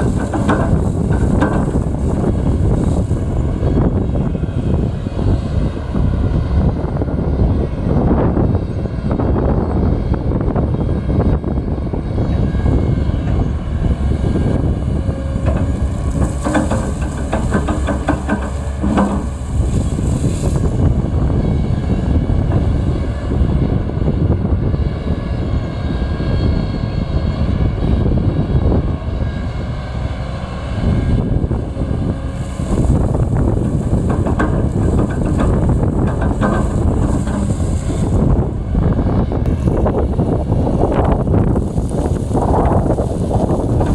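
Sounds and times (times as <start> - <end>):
rattling and clatter: 0.0 - 3.1, 15.3 - 20.9, 32.4 - 38.4
heavy machinery diesel engine: 0.0 - 43.9.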